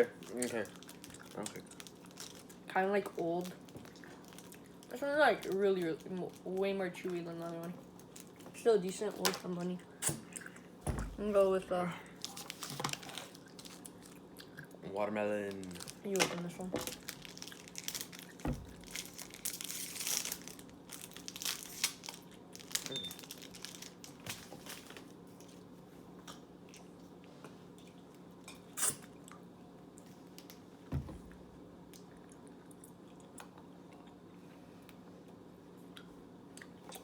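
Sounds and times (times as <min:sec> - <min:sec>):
faint steady hum: 0:00.0 - 0:37.0
candy wrapper crinkling: 0:00.2 - 0:02.6, 0:12.2 - 0:14.0, 0:15.4 - 0:25.1
soft thumps: 0:10.8 - 0:11.4, 0:30.9 - 0:31.5
chewing: 0:26.2 - 0:30.2.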